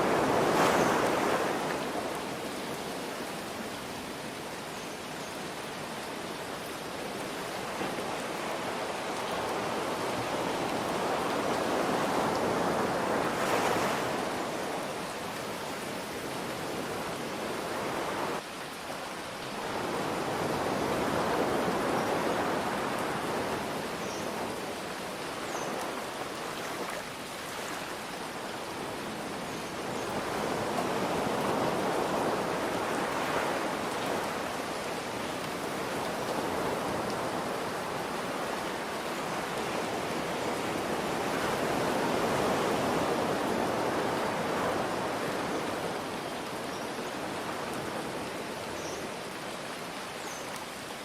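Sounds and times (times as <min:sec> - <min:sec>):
ocean waves washing in: 0:00.0 - 0:04.1, 0:07.3 - 0:18.4
rain hiss: 0:00.0 - 0:51.0.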